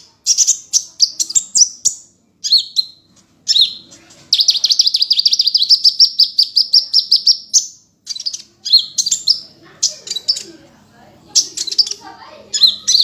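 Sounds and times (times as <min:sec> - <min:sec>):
bird chirping phrases: 0:00.0 - 0:13.0.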